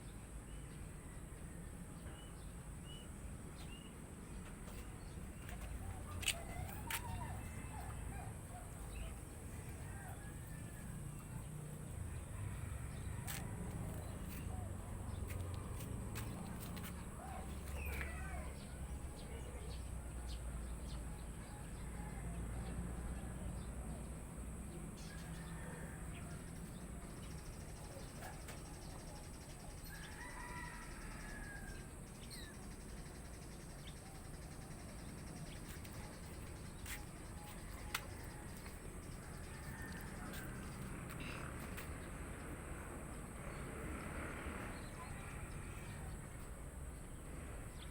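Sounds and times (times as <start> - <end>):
birds chirping: 2.1 - 22.0.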